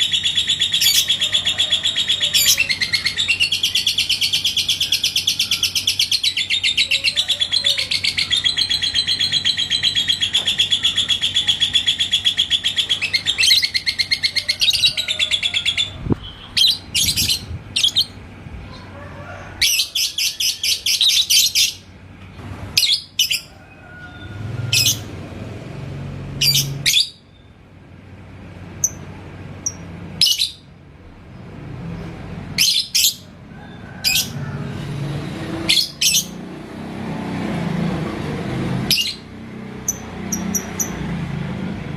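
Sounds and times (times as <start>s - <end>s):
bird chirping: 0.0s - 18.9s, 26.4s - 27.6s.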